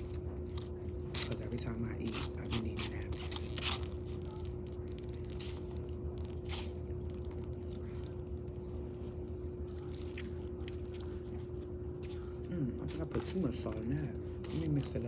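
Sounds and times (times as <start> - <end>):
steady background hum: 0.0 - 15.0
person chewing food: 5.0 - 13.3.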